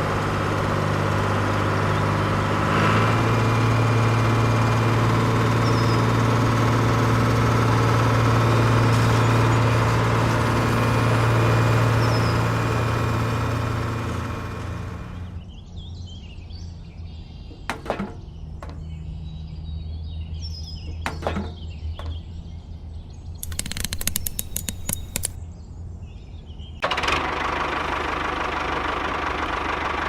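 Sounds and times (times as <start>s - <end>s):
small tractor engine running: 0.0s - 15.4s, 17.7s - 18.9s, 23.4s - 25.4s, 26.8s - 30.0s.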